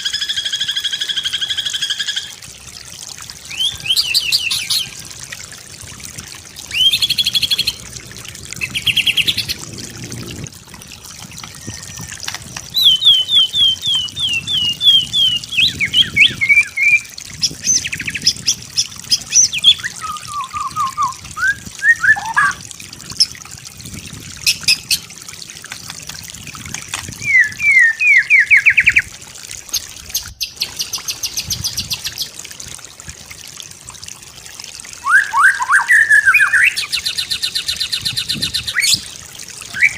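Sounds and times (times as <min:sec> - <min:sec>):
bird singing: 0:12.8 - 0:17.1, 0:19.4 - 0:22.6, 0:27.3 - 0:29.0.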